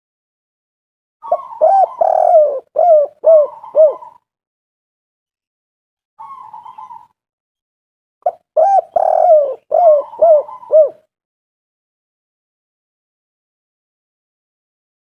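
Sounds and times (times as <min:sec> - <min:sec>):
dove cooing: 0:01.2 - 0:04.2, 0:06.2 - 0:07.2, 0:08.2 - 0:11.1.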